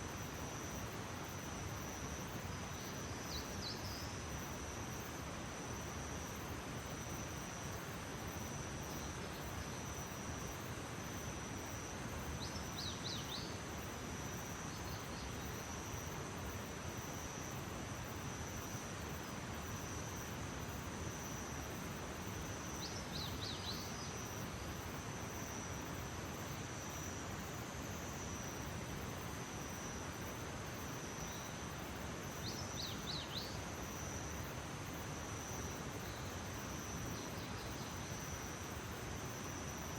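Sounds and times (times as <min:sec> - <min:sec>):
crickets trilling: 0:00.0 - 0:39.9
outdoor hiss: 0:00.0 - 0:39.9.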